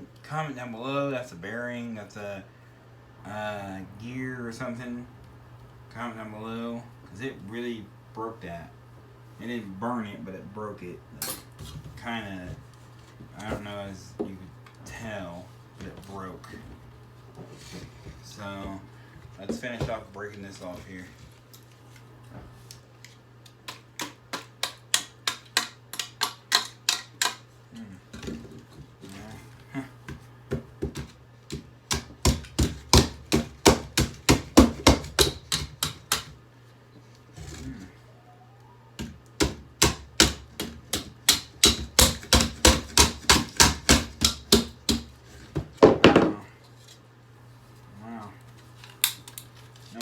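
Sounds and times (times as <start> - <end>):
hammer striking plastic: 39.0 - 45.1.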